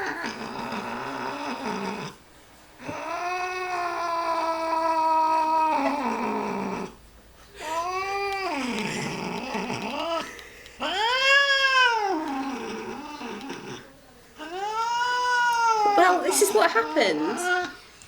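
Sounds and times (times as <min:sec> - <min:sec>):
cat yowling: 0:10.8 - 0:13.6, 0:14.4 - 0:17.8.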